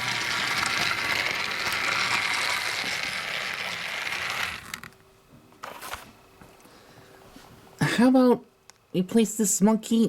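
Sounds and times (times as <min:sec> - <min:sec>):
toy train clicks: 0:00.0 - 0:04.9
toy train electric motor running: 0:00.0 - 0:05.0.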